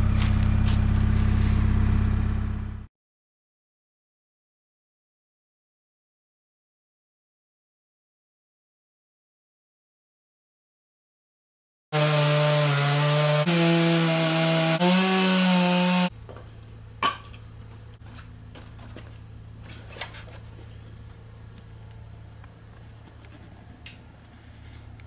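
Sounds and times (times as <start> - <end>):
low hum: 0.0 - 2.9, 16.1 - 25.0
chainsaw cutting a log: 12.0 - 16.1.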